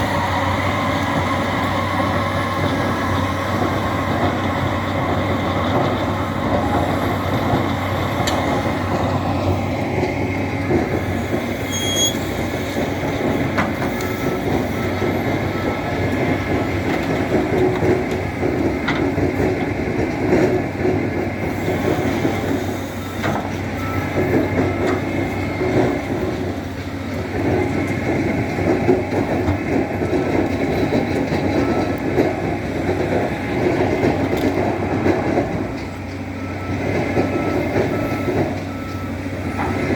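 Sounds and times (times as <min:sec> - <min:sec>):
loader diesel engine running: 0:00.0 - 0:39.9
short squeaks: 0:11.6 - 0:12.4.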